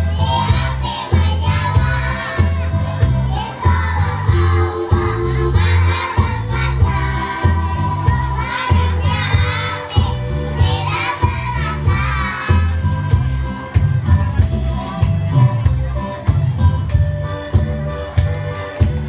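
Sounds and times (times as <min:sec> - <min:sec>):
children's choir singing: 0:00.0 - 0:13.7
backing track with bass beat: 0:00.0 - 0:19.0.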